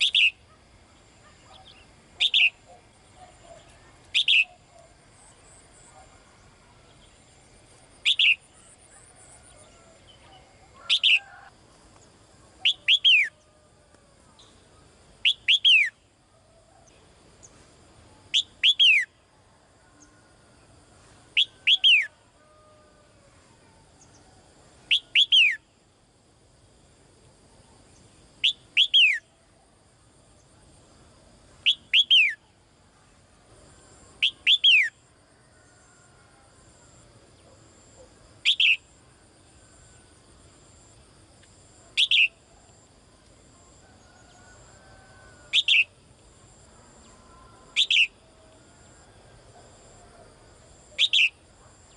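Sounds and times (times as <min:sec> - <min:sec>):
songbird calling: 0:00.0 - 0:06.2, 0:06.8 - 0:13.5, 0:14.3 - 0:17.6, 0:18.2 - 0:19.2, 0:21.4 - 0:22.7, 0:24.9 - 0:25.7, 0:27.8 - 0:29.3, 0:31.6 - 0:32.6, 0:34.2 - 0:35.1, 0:37.4 - 0:39.0, 0:41.9 - 0:42.8, 0:45.4 - 0:46.0, 0:47.0 - 0:48.3, 0:50.9 - 0:51.9.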